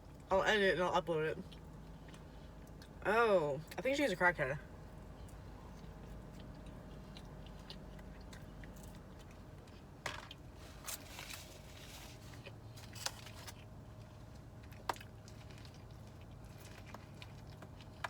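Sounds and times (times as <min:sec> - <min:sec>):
low steady hum: 0:00.0 - 0:18.0
clicks and crackles of eating: 0:01.4 - 0:03.0, 0:04.8 - 0:11.5, 0:12.2 - 0:18.0.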